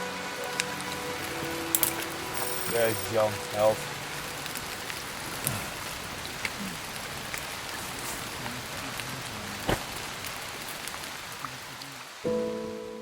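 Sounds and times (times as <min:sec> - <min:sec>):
steady rain: 0:00.0 - 0:13.0
raindrop ticks: 0:03.1 - 0:12.0.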